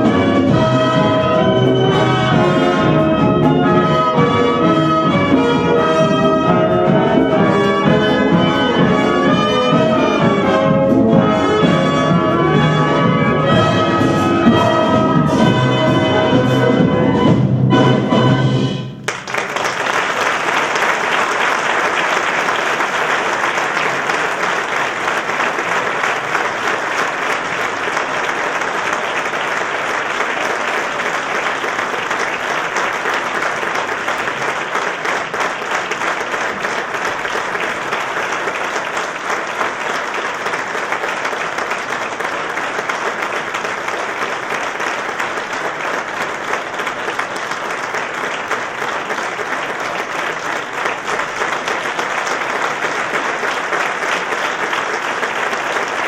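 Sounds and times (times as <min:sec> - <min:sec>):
audience applause: 0:19.0 - 0:56.0.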